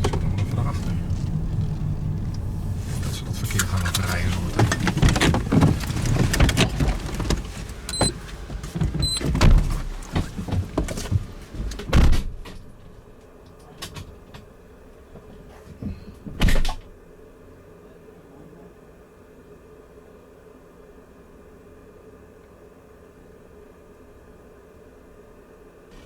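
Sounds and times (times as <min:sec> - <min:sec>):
vehicle door shutting: 0:00.0 - 0:12.4
clunks and rustling in cab: 0:00.0 - 0:12.8, 0:13.6 - 0:16.9.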